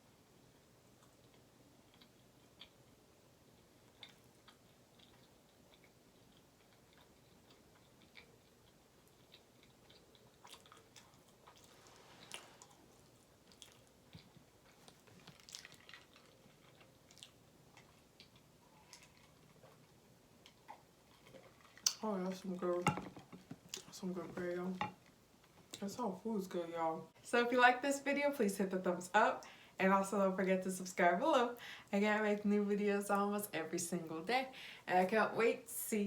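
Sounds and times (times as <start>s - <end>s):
person chewing food: 0.9s - 22.0s.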